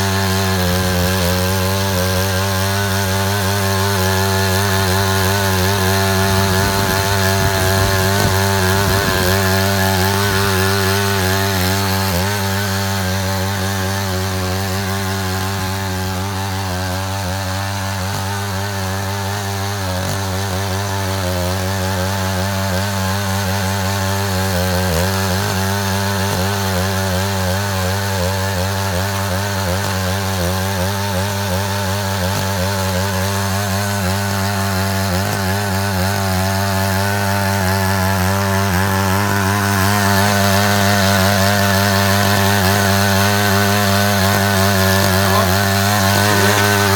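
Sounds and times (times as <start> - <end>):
walking tractor engine running: 0.0 - 16.0, 39.1 - 46.9.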